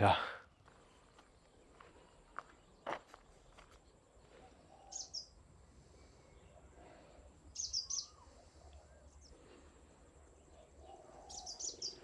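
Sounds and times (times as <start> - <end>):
bird chirping: 0.4 - 12.0.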